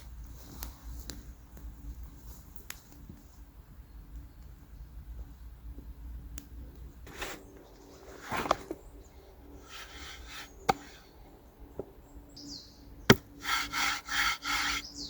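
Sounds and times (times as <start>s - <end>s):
bird chirping: 7.4s - 15.0s
knife scraping strokes: 9.7s - 11.0s, 13.4s - 15.0s.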